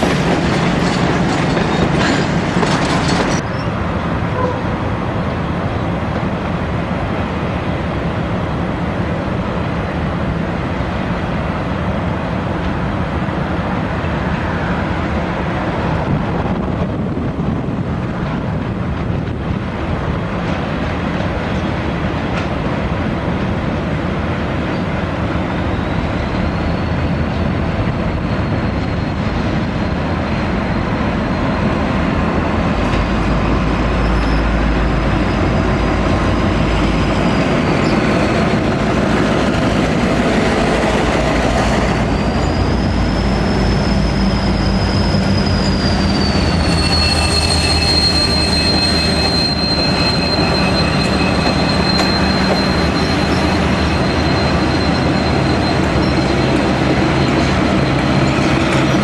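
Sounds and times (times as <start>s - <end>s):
train wheel rumble: 0.0s - 59.0s
high wheel squeal: 25.5s - 59.0s.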